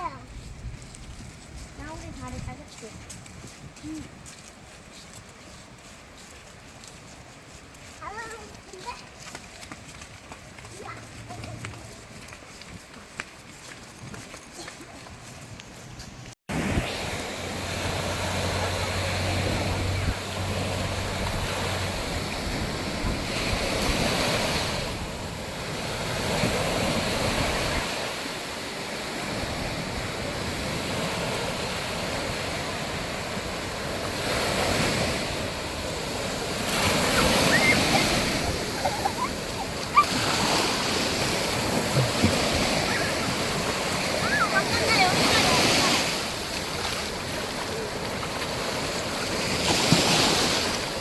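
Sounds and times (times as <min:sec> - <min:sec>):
wind buffeting microphone: 0:00.0 - 0:04.2, 0:16.5 - 0:51.0
ocean waves breaking on beach: 0:00.0 - 0:09.6, 0:16.5 - 0:51.0.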